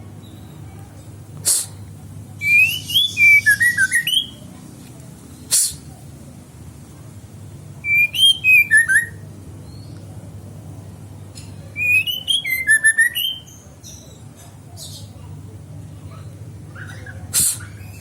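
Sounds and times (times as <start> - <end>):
steady low hum: 0.0 - 7.9
songbird singing whistled notes: 2.4 - 4.5, 7.8 - 10.0, 11.7 - 14.2.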